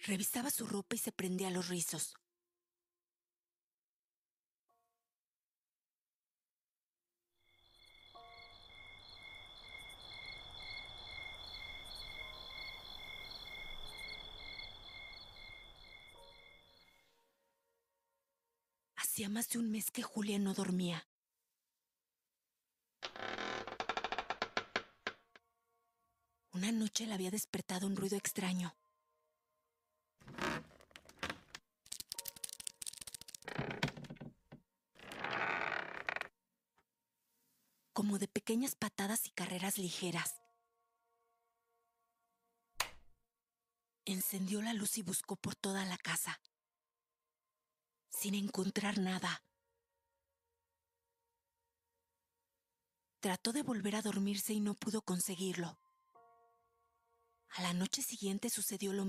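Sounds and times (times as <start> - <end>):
insects trilling: 7.5 - 16.8
pulsing insect chirp: 7.5 - 17.0.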